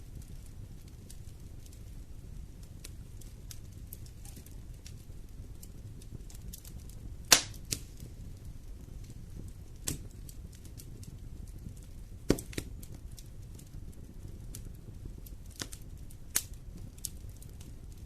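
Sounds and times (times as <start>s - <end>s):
fireplace fire crackling: 0.0s - 18.0s
loud sharp pop: 7.3s - 7.6s, 12.3s - 12.7s.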